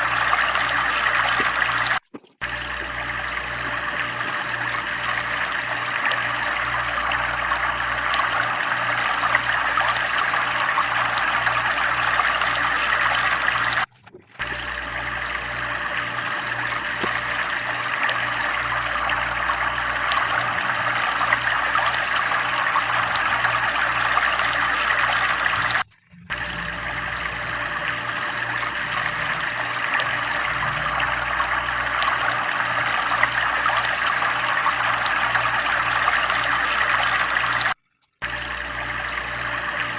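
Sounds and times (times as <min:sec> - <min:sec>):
water flowing from a well: 0:00.0 - 0:39.9
low pulsing throb: 0:26.0 - 0:32.2.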